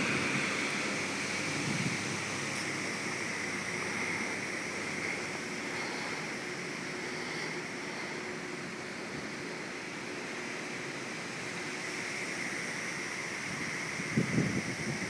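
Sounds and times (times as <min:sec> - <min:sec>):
heavy rain falling: 0:00.0 - 0:06.2.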